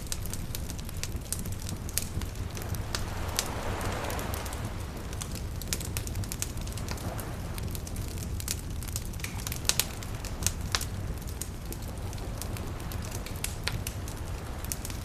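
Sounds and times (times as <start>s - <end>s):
wood fire crackling and popping: 0.0s - 15.0s
low rumble: 0.4s - 7.6s.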